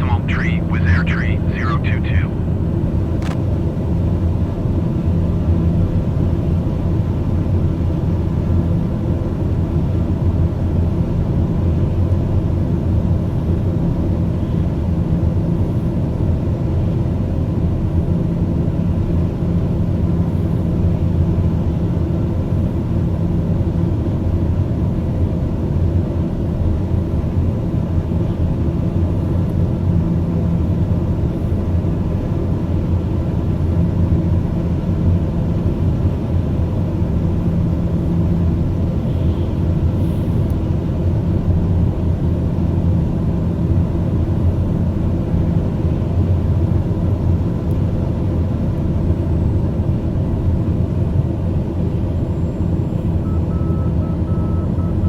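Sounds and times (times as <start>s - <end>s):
faint low hum: 0.0s - 2.4s
steady low rumble: 0.0s - 3.4s.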